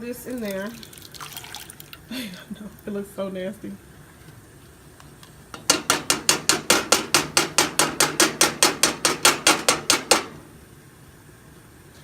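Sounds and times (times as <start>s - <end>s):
rapid knocking on cooking pot: 5.6s - 10.4s.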